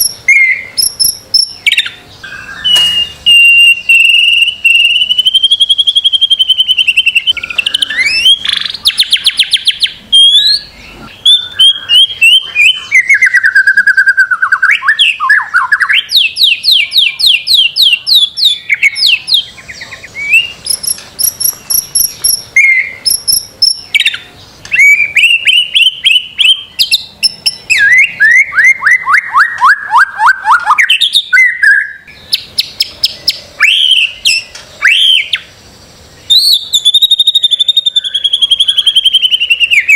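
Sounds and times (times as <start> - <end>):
songbird singing trills and whistles: 0.0 - 39.9.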